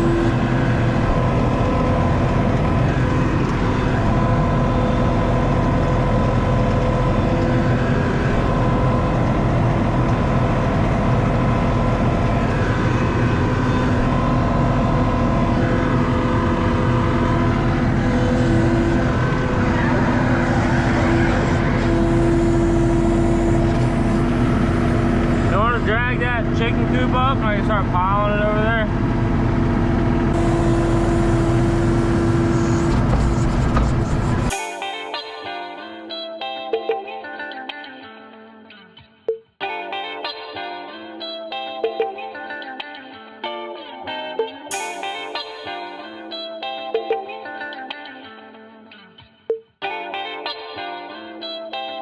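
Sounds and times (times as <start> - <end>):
skid steer engine running: 0.0 - 34.6.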